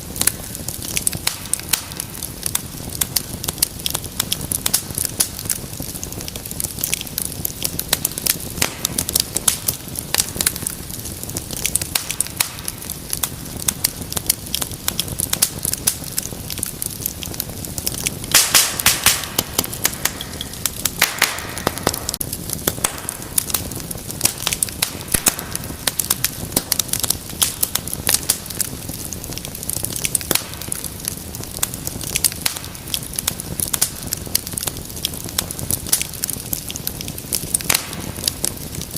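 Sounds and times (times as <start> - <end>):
wood fire crackling: 0.0 - 38.9
burst of loud pops: 21.0 - 23.1.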